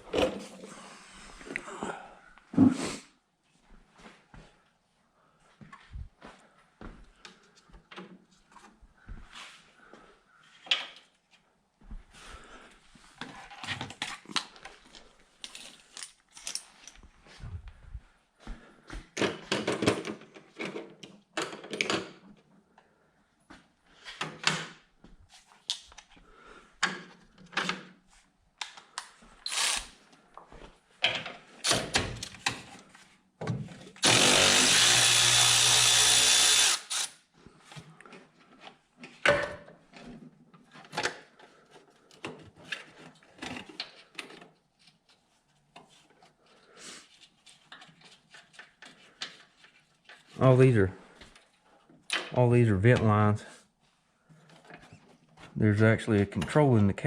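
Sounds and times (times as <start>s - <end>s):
power tool running: 29.5s - 29.9s, 34.0s - 37.1s.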